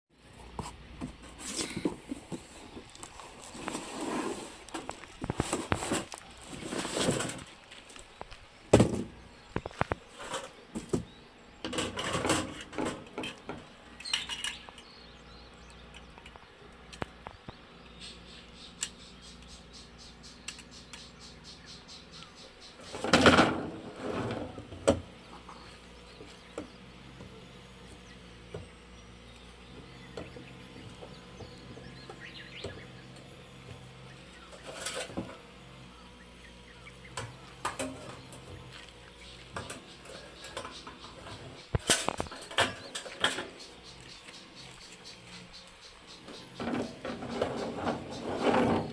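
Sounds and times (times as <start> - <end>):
metal parts clinking and scraping: 14.0 - 14.8.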